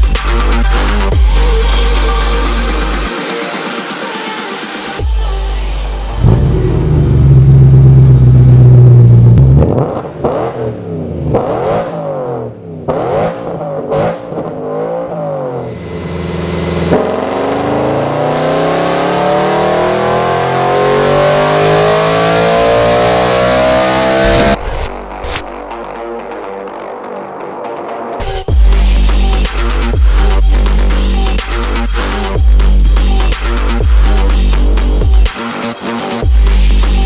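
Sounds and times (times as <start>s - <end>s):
car engine revving: 5.7s - 26.6s.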